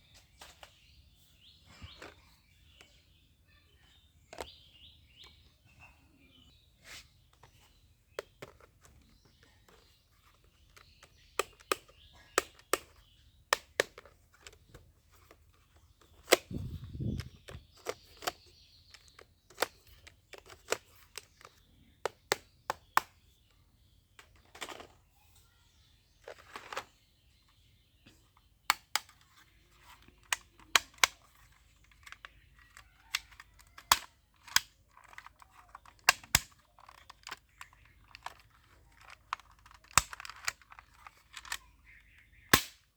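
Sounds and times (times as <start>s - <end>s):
airsoft pistol pops: 42.5s - 42.9s.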